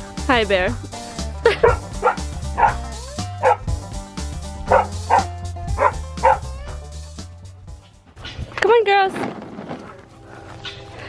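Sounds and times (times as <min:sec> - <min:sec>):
background music: 0:00.0 - 0:09.1, 0:09.9 - 0:11.0
dog barking: 0:01.5 - 0:03.7, 0:04.6 - 0:06.8.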